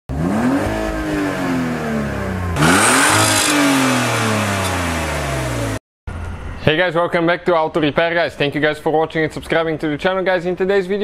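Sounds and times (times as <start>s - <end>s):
car engine revving: 0.1s - 6.4s.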